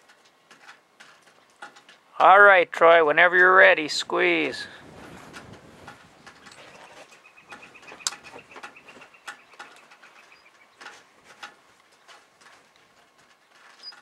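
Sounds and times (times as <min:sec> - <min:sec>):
bird trilling: 0:06.6 - 0:10.8.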